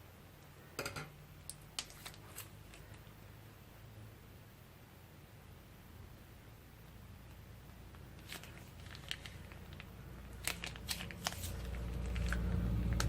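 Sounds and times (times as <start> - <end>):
plastic bags crinkling: 8.1 - 13.0.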